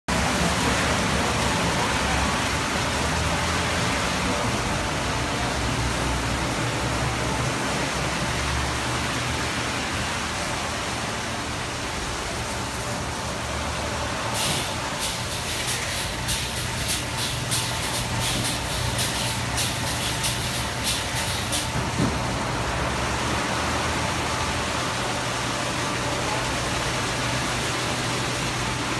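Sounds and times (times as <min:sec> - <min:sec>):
spraying water hiss: 0:00.2 - 0:28.9
short sharp hissing bursts: 0:14.3 - 0:21.7.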